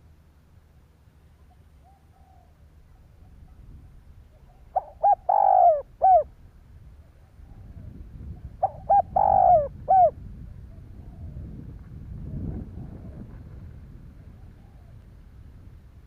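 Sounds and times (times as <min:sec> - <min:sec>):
dove cooing: 0:01.4 - 0:03.6, 0:04.3 - 0:06.3, 0:07.0 - 0:11.5.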